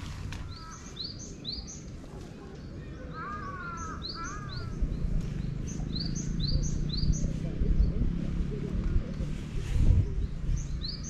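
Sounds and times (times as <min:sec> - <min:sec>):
small birds chirping: 0:00.0 - 0:11.0
low rumble: 0:04.6 - 0:11.0.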